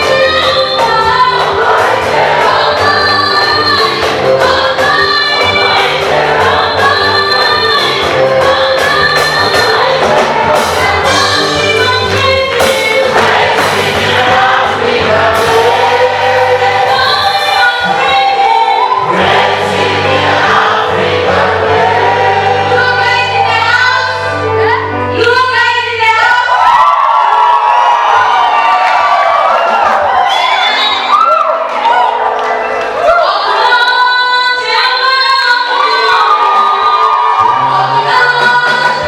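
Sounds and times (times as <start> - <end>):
choir singing gospel: 0.0 - 24.8, 32.9 - 39.0
backing band: 0.0 - 39.0.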